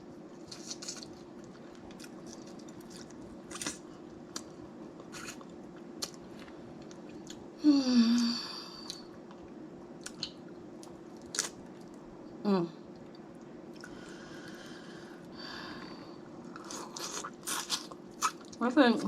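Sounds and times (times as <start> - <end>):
chewing crab legs: 0.4 - 7.4, 16.5 - 18.6
person humming: 7.6 - 8.8.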